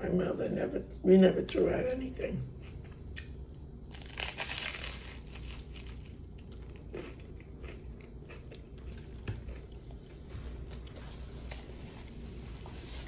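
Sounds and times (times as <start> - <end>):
close-up crunchy chewing: 2.6 - 11.7
crunchy bite into toast: 3.9 - 9.7.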